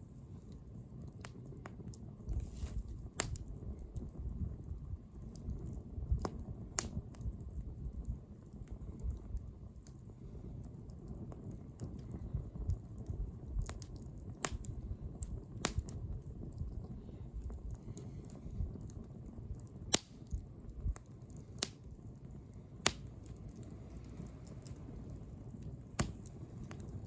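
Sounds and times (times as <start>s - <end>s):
burning wood crackling: 0.0s - 27.0s
low rumble of flames: 0.0s - 27.0s
sharp fire pops: 0.0s - 27.0s.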